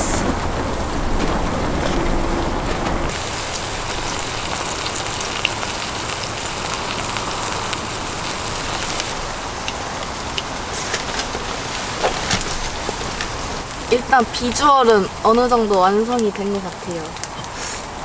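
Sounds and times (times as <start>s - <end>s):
batter sizzling in a pan: 3.1s - 12.1s.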